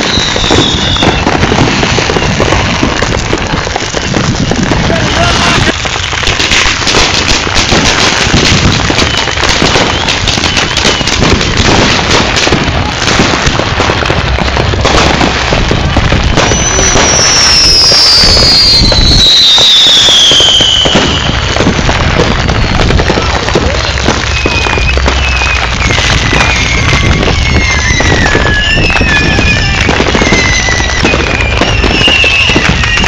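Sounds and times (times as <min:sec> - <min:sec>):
high descending whistle: 0:00.0 - 0:01.4, 0:16.4 - 0:21.3, 0:24.2 - 0:33.0
fireworks crackling: 0:00.0 - 0:33.0.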